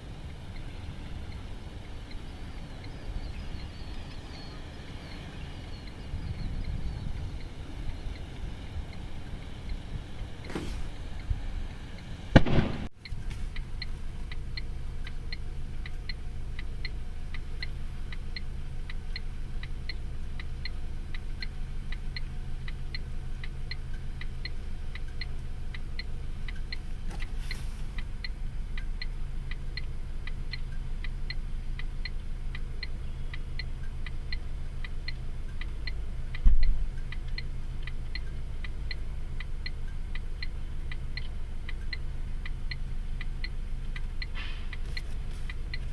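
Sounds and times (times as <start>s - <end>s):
steady ticking: 0.0s - 27.2s, 27.8s - 45.9s
low continuous rumble: 0.0s - 45.9s
loud thump: 10.5s - 11.0s, 12.4s - 12.9s.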